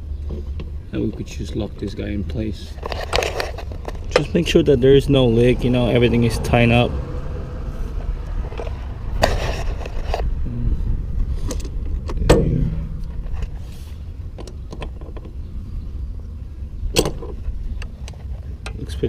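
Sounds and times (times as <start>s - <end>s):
low rumble: 4.0s - 17.8s.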